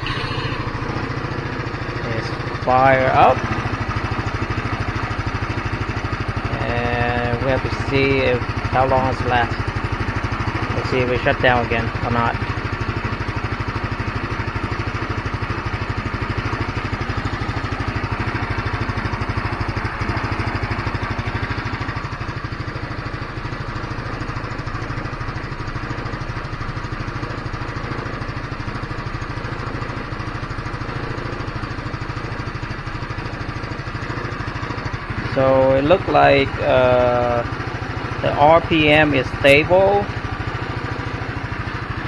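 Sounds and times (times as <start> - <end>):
scooter engine idling: 0.0 - 42.0.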